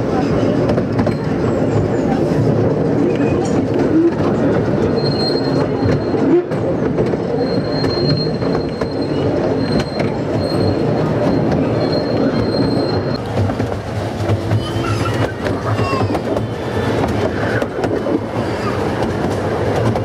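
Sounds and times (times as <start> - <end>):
miniature train rumbling: 0.0 - 20.0
wheels clicking on rails: 0.0 - 20.0
wheel squeal: 3.1 - 13.3.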